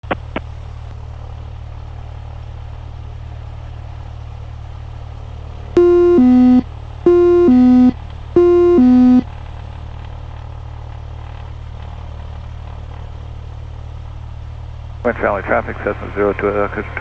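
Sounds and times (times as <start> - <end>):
electronic two-note alert tone: 5.8 - 9.2.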